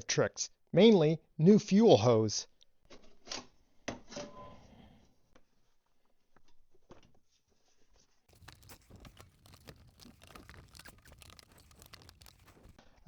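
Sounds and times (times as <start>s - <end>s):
packaging crinkling and rustling: 8.3s - 12.8s.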